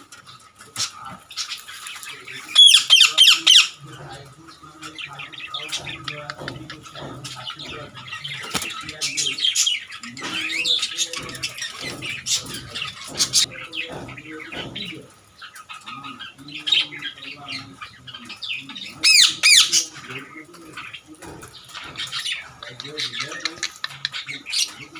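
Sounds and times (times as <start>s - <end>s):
birds chirping and squawking: 0.0s - 24.9s
lower bird calls: 0.0s - 24.9s
sweeping high-pitched bird calls: 1.3s - 24.9s.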